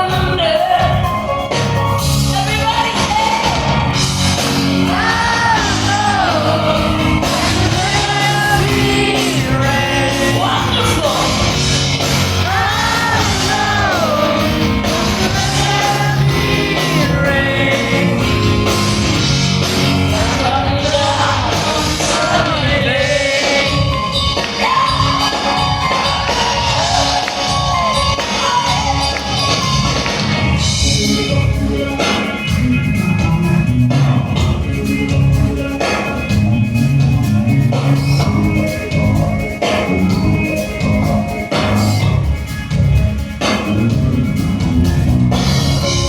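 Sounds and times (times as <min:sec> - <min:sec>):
woman singing: 0:00.0 - 0:01.3, 0:04.8 - 0:11.6, 0:12.4 - 0:18.4
rock band playing live: 0:00.0 - 0:46.0.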